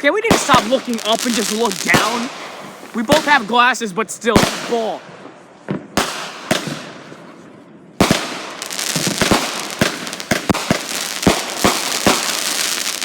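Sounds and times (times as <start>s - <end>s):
fireworks crackling and popping: 0.1s - 7.4s, 8.0s - 13.0s
firework bang: 0.3s - 3.5s, 8.0s - 13.0s.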